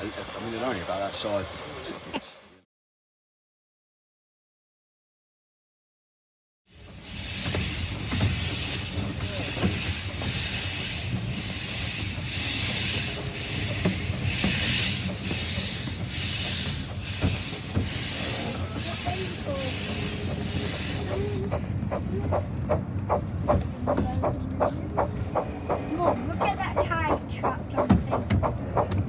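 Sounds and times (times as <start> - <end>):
rumble of running train: 0.0 - 2.6, 6.7 - 29.0
steam locomotive chuffing: 0.0 - 2.6, 6.7 - 29.0
wheels clicking over track: 6.8 - 29.0.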